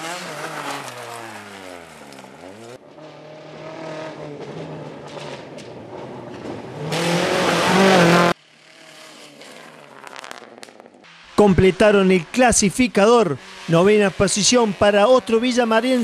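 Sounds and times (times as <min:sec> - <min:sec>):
rally car engine running hard: 0:00.0 - 0:10.8.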